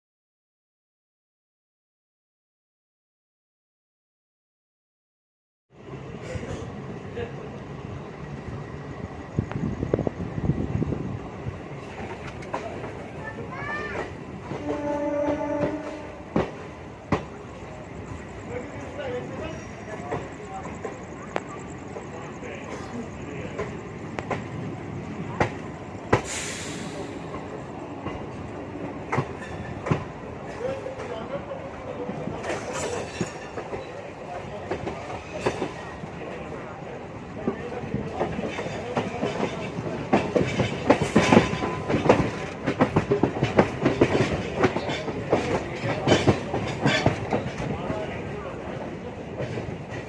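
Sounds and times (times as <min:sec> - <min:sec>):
train rumbling: 0:05.7 - 0:50.0
brief hiss: 0:26.2 - 0:27.4.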